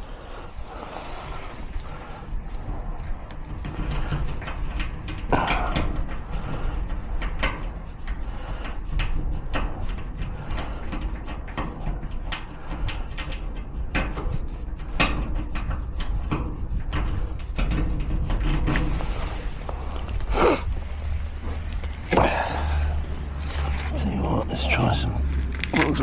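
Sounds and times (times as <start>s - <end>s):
steady low rumble: 0.0s - 15.0s, 15.8s - 26.0s
lock picks clicking and scraping: 0.4s - 6.3s.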